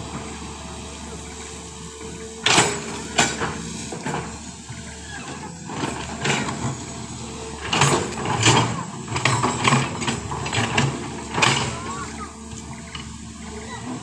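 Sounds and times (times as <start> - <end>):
engine running low: 0.0 - 14.0
machinery knocks and clatter: 7.6 - 11.8.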